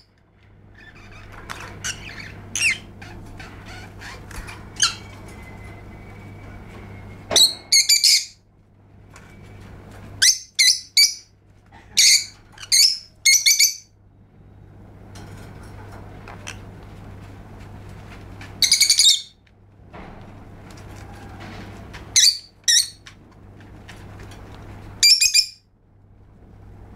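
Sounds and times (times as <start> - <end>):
steady low hum: 0.0 - 26.9
lovebird shrill chirps: 7.4 - 8.4, 10.2 - 11.3, 12.0 - 13.9, 18.6 - 19.3, 25.0 - 25.6.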